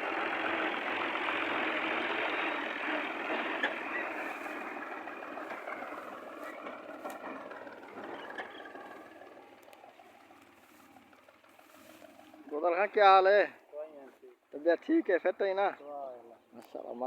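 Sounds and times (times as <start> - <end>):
tractor engine running: 0.0 - 13.5.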